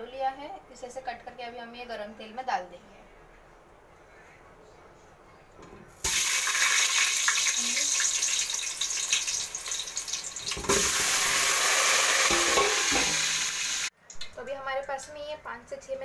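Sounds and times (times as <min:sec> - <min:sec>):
potatoes sizzling in hot oil: 0:06.0 - 0:13.9.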